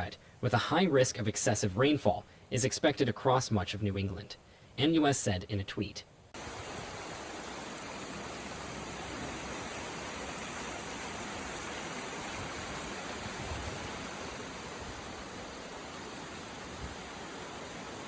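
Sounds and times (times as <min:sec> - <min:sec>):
floodwater rushing: 0:06.4 - 0:18.0.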